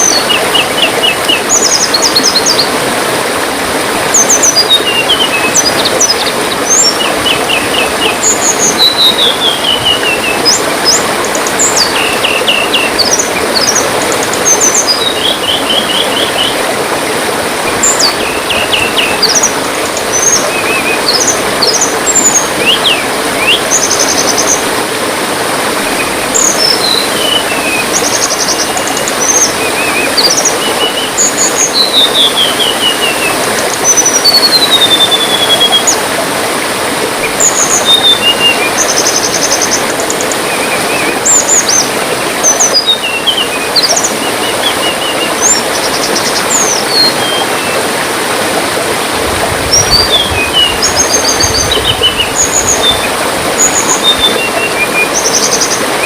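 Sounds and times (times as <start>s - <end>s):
trickling water: 0.0s - 56.0s
songbirds chirping and trilling: 4.2s - 16.8s, 49.2s - 56.0s.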